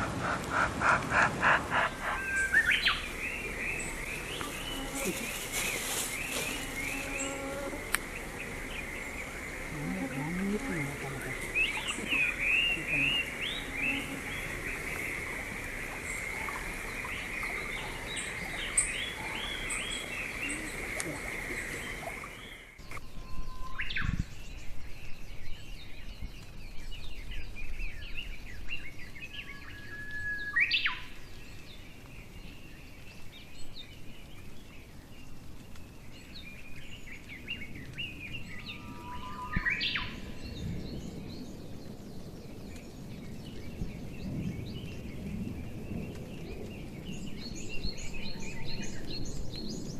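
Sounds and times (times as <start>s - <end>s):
birds singing and chirping: 0.0s - 49.9s.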